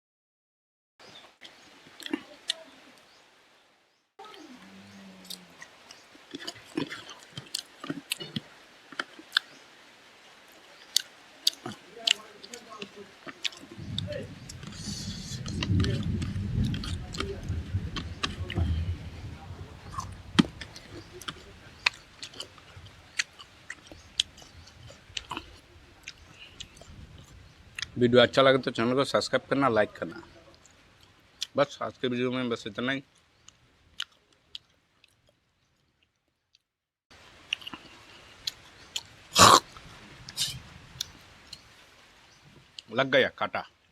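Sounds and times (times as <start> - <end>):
person chewing and smacking: 5.3 - 9.5, 10.8 - 13.8, 19.9 - 26.9, 37.5 - 39.5.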